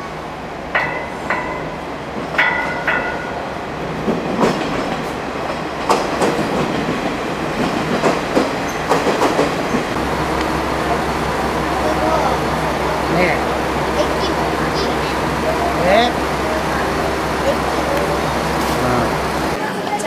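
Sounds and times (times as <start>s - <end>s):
train rumbling: 0.0s - 20.0s
metallic clacks of train wheels: 0.7s - 3.4s, 4.0s - 11.2s.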